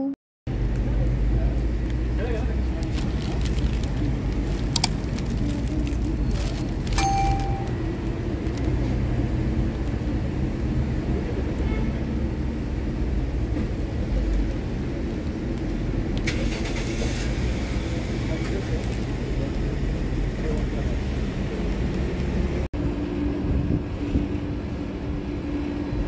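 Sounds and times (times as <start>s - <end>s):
road traffic rumble: 0.5s - 26.0s
short flat high tone: 7.0s - 7.8s.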